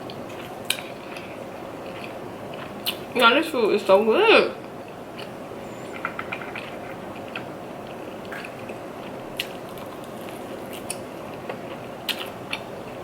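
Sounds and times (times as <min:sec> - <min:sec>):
chewing and biting food: 0:00.0 - 0:03.1, 0:06.0 - 0:13.0.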